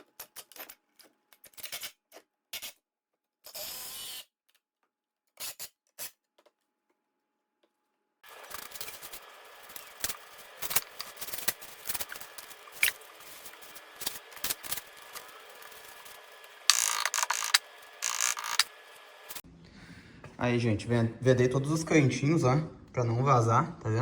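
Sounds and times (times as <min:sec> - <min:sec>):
tape clicking and crackling: 0:08.4 - 0:18.7.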